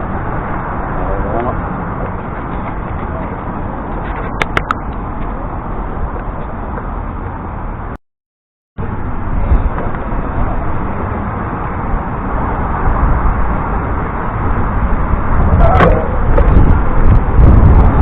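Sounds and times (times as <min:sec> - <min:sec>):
bicycle road noise: 0:00.0 - 0:08.0, 0:08.8 - 0:18.0
wind rushing: 0:09.2 - 0:18.0.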